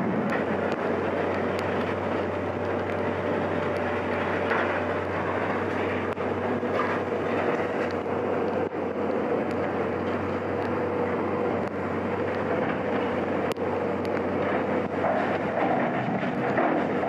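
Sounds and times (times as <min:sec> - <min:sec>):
heavy machine engine hum: 0:00.0 - 0:17.0
faint clicks: 0:07.4 - 0:10.8, 0:13.4 - 0:14.6.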